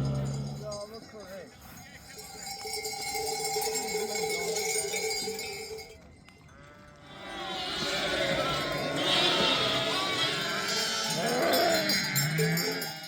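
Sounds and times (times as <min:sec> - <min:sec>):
livestock bleating: 0:06.5 - 0:13.0.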